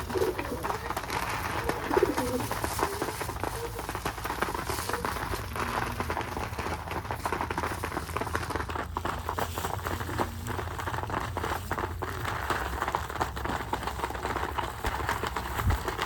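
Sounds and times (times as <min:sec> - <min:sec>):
pigeons cooing softly: 0:00.0 - 0:04.0
pigeons scratching and rustling: 0:00.0 - 0:16.0.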